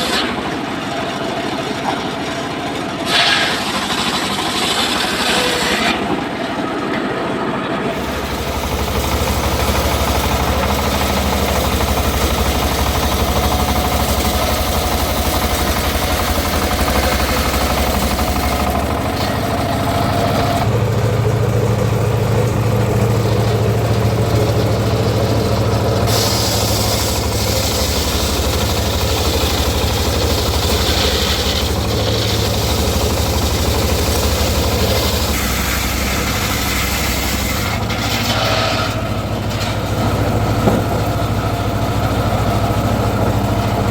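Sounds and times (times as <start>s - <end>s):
sawmill engine hum: 0.0s - 43.9s
bright saw hiss: 23.3s - 39.6s.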